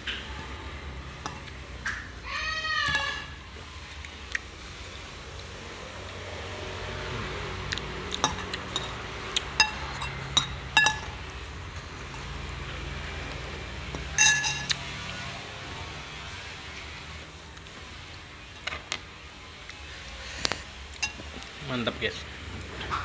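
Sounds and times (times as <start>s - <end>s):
spoon scraping glass dish: 8.1s - 12.4s, 14.0s - 15.0s, 21.0s - 21.2s.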